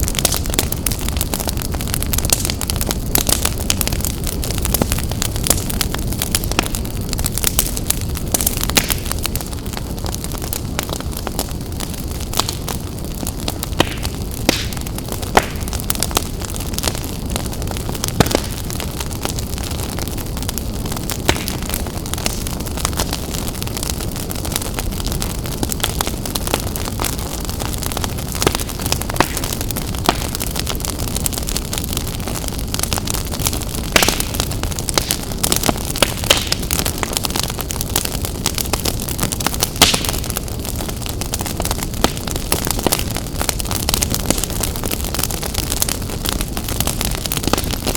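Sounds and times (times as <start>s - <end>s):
fire roaring: 0.0s - 47.9s
logs crackling and popping: 0.0s - 47.9s.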